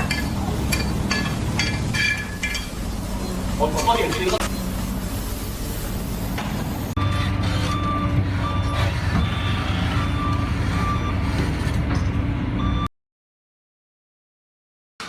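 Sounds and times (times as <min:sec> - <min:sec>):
diesel engine running: 0:04.4 - 0:12.8
backup alarm beeping: 0:07.0 - 0:11.5.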